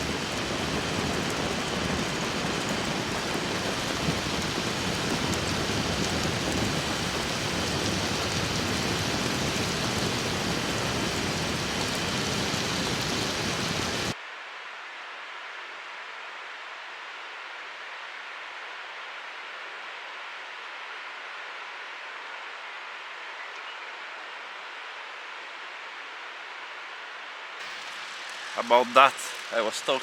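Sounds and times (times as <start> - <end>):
wind rushing on microphone: 0.0 - 14.2.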